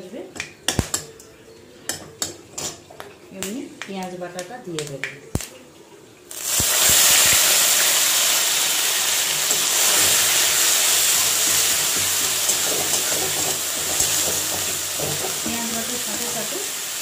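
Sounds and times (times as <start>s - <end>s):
paste sizzling in hot oil: 6.3s - 17.0s
metal spatula stirring: 9.4s - 16.0s.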